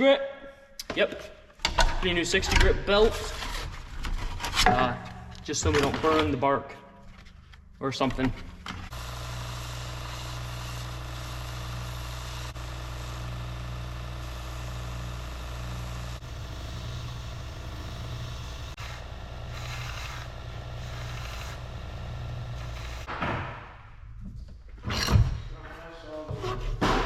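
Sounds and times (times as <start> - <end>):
belt sander running: 8.9 - 23.1
wood rasping on sanding belt: 18.1 - 23.1.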